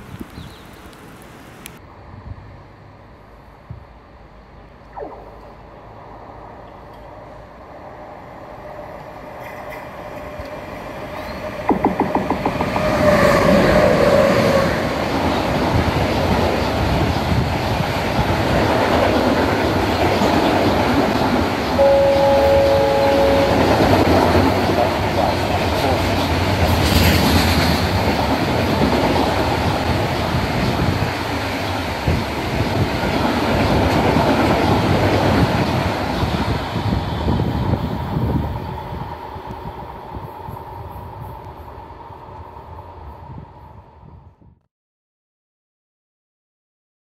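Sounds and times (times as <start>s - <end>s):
freight train rumbling past: 5.8s - 44.4s
wheels clacking over rail joints: 9.3s - 13.2s, 23.9s - 32.4s
brief ringing tone: 21.8s - 24.6s.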